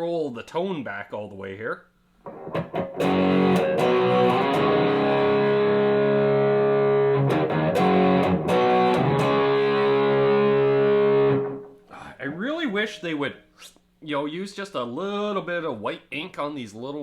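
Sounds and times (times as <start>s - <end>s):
distorted electric guitar chords: 2.3s - 11.8s.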